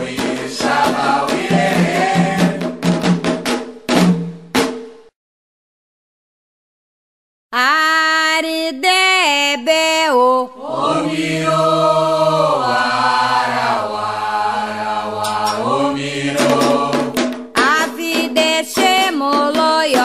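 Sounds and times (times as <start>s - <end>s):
single voice chanting: 14.6s - 17.1s.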